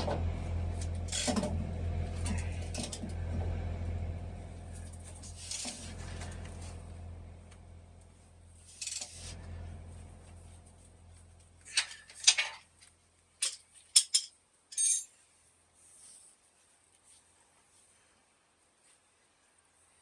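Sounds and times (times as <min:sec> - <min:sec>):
low hum: 0:00.0 - 0:12.2
metal tools clinking and clanking: 0:13.4 - 0:15.2.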